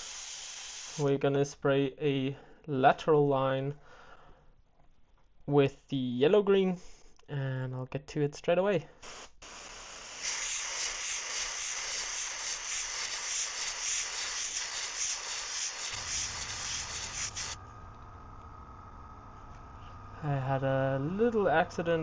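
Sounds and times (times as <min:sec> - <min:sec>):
airbrush spraying hiss: 0:00.0 - 0:01.1, 0:09.0 - 0:17.6
low hum: 0:16.0 - 0:22.0.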